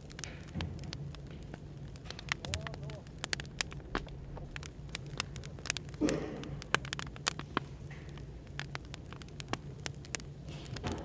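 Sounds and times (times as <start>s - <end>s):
cafe background hum: 0.0s - 11.0s
firewood crackling and popping: 0.0s - 11.0s.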